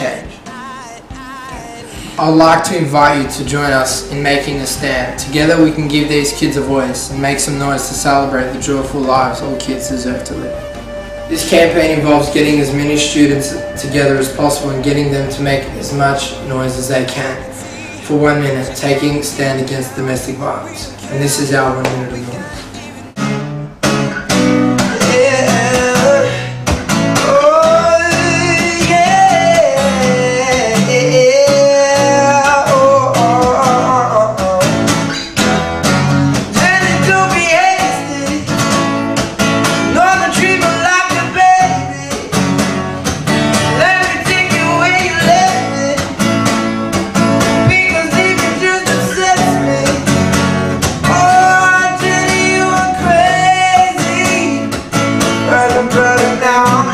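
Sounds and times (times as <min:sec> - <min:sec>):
person singing: 0:00.0 - 0:23.2, 0:24.9 - 0:26.6, 0:27.2 - 0:35.3, 0:36.6 - 0:38.6, 0:43.7 - 0:46.2, 0:47.6 - 0:50.2, 0:51.0 - 0:54.7, 0:55.4 - 0:56.9
strummed guitar: 0:00.0 - 0:56.9.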